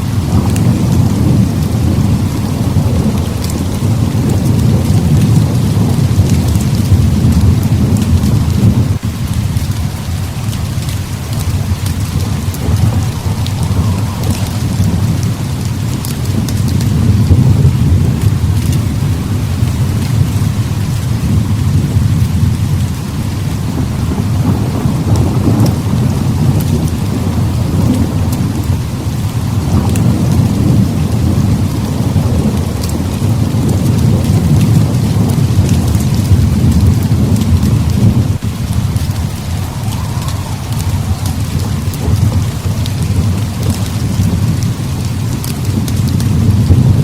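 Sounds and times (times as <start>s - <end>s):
deep rolling thunder: 0.0s - 47.0s
heavy rain pouring: 0.0s - 47.0s.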